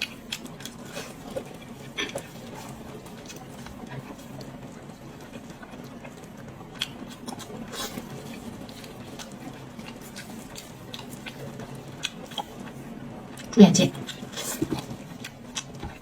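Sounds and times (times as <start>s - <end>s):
wet mouth clicks while chewing: 13.4s - 16.0s.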